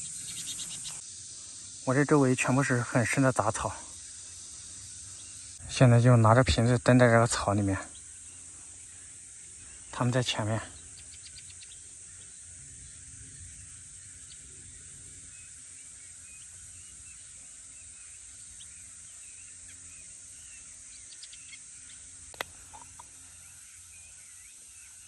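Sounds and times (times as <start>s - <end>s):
high insect drone: 0.0s - 25.0s
small birds chirping: 0.0s - 25.0s
sharp click: 22.3s - 23.0s.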